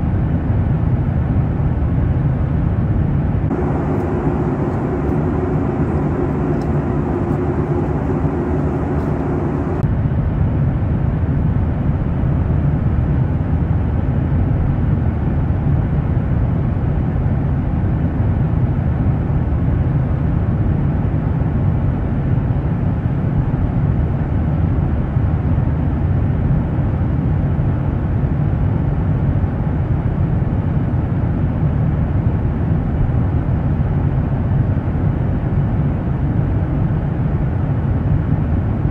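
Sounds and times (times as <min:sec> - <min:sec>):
airliner cabin engine rumble: 0:00.0 - 0:38.9
steady hum: 0:03.4 - 0:10.0.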